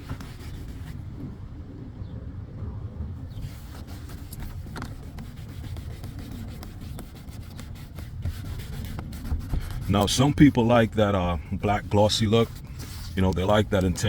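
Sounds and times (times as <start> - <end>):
cloth rubbing door panel: 0.0 - 1.0, 3.3 - 10.9, 11.6 - 14.0.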